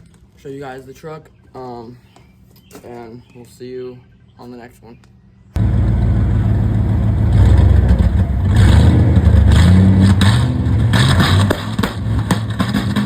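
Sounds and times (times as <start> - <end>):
truck engine revving: 5.6 - 13.0.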